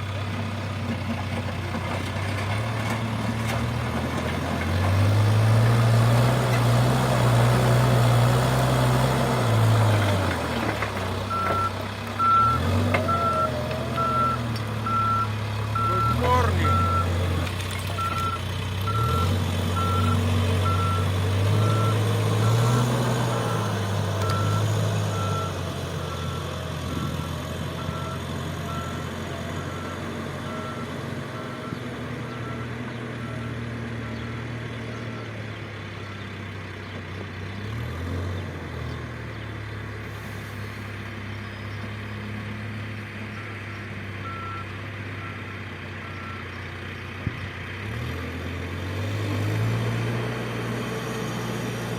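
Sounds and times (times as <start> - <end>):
heavy machine engine running: 0.0 - 51.9
reversing alarm beeping: 11.3 - 17.2, 18.0 - 22.8, 23.4 - 34.1.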